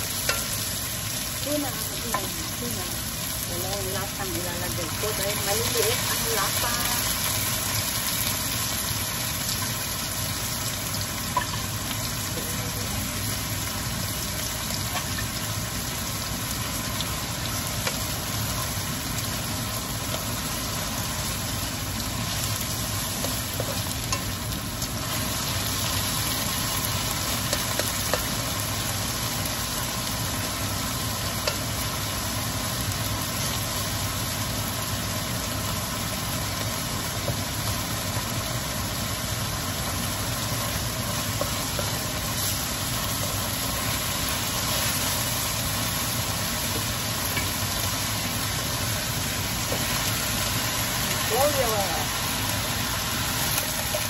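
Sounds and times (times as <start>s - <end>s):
food sizzling in a wok: 0.0s - 54.0s.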